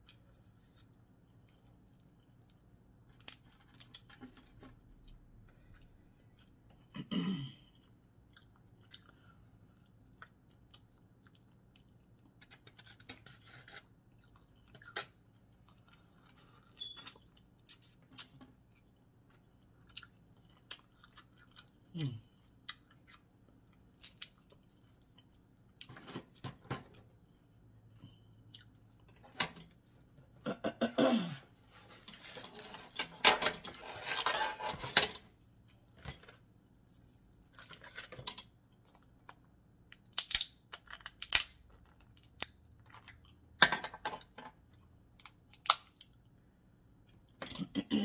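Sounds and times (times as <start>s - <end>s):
chewing: 8.2s - 12.8s, 14.1s - 25.9s, 27.9s - 29.2s.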